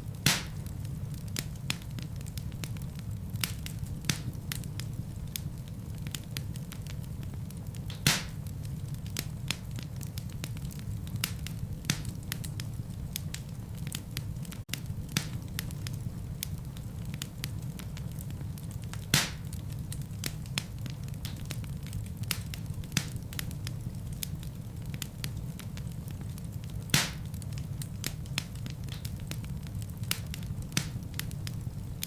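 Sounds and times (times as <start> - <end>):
fire popping loudly: 0.0 - 5.7, 6.4 - 32.0
wood fire crackling: 0.0 - 32.0.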